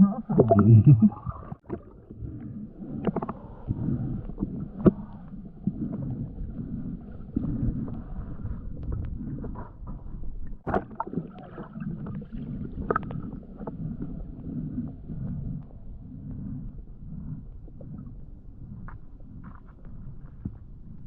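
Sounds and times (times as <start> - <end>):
muffled underwater rumbling: 0.0 - 21.0.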